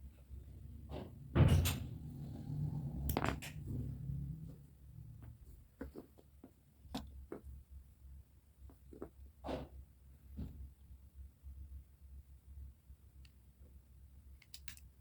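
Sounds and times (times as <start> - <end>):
small clock mechanism clicks: 14.4 - 14.9.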